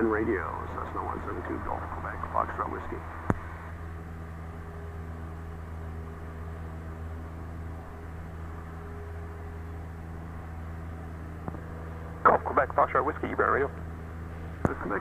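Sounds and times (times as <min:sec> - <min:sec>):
propeller plane engine droning: 0:00.0 - 0:15.0
airflow noise: 0:00.5 - 0:04.2.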